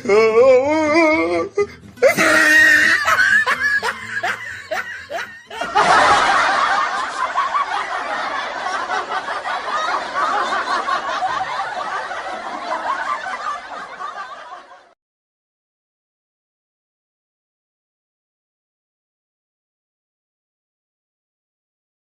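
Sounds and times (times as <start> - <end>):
laughter: 2.0 - 15.0.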